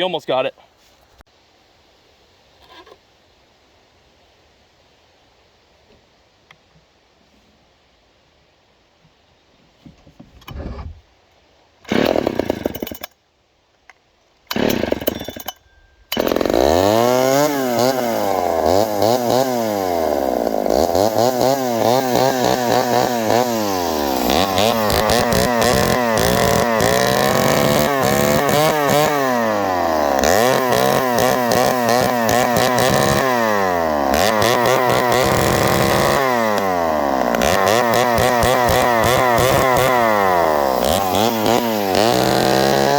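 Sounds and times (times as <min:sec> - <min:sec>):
chainsaw starting and revving: 0:11.8 - 0:13.1, 0:14.5 - 0:15.5, 0:16.1 - 0:42.9.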